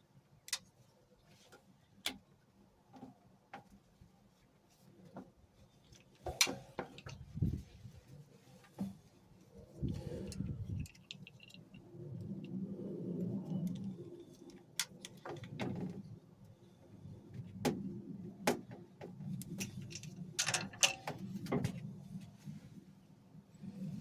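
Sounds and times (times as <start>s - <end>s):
metal pipe clicks and clinks: 19.5s - 21.1s.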